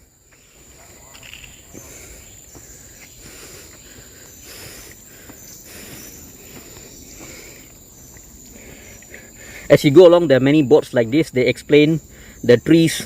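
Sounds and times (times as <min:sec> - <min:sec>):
footsteps on dirt trail: 0:00.0 - 0:09.8
insects buzzing: 0:00.0 - 0:13.0.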